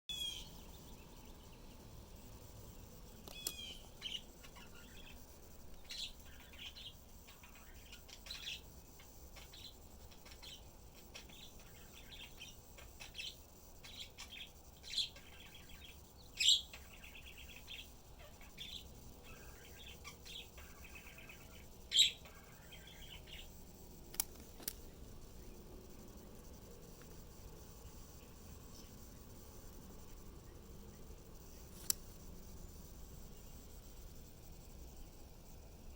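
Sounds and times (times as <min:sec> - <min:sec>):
small birds chirping: 0:00.1 - 0:35.9
sharp clicks: 0:03.2 - 0:03.8, 0:24.0 - 0:24.9, 0:31.7 - 0:32.1.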